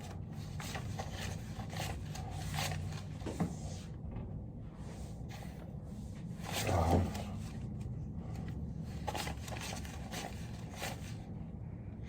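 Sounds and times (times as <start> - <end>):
banknotes rustling: 0.0 - 3.2, 8.3 - 11.2.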